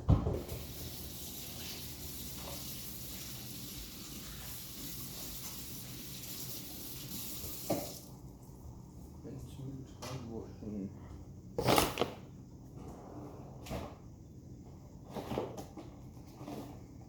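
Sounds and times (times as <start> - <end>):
kitchen tap running: 0.3 - 8.2.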